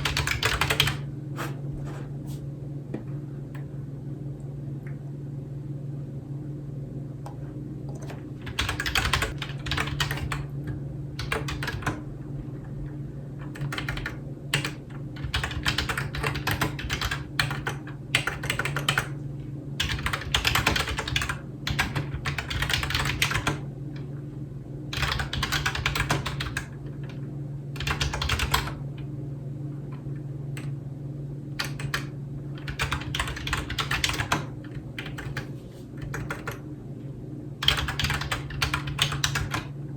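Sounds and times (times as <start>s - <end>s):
computer keyboard typing: 0.0s - 1.5s, 7.9s - 10.5s, 11.2s - 12.0s, 13.5s - 19.2s, 19.8s - 23.6s, 24.9s - 26.7s, 27.8s - 28.8s, 31.6s - 36.6s, 37.6s - 39.7s
steady low hum: 0.0s - 39.9s.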